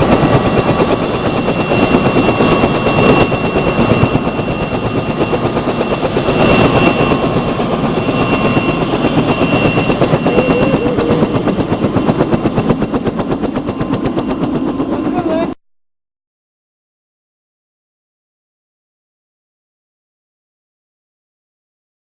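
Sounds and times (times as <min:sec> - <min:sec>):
helicopter rotor and engine: 0:00.0 - 0:15.6.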